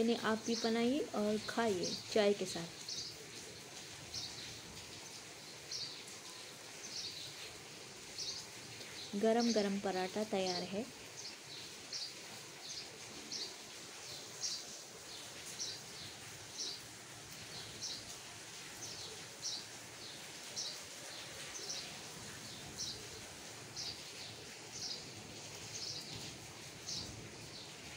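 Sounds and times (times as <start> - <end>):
outdoor background hiss: 0.0 - 27.9.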